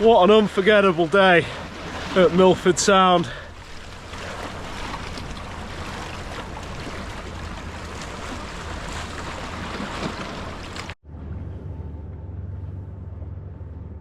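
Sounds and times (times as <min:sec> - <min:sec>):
water lapping around kayak: 0:00.0 - 0:11.0.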